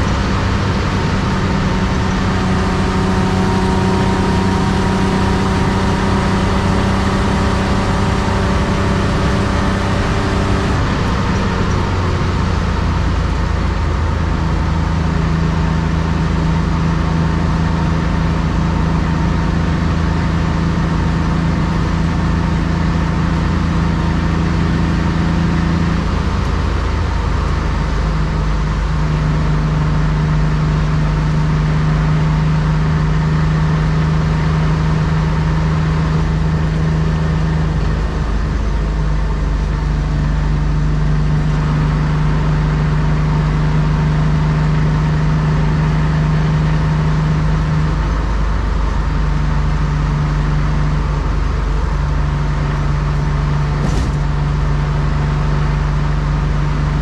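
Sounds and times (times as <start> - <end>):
car engine cruising: 0.0 - 57.0
tyre and road noise: 0.0 - 57.0.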